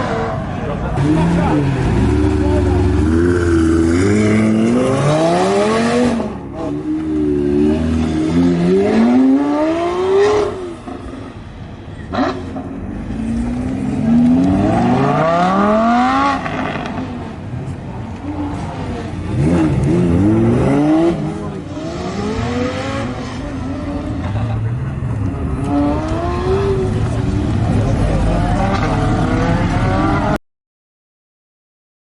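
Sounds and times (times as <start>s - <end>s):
car engine revving: 0.0s - 30.4s.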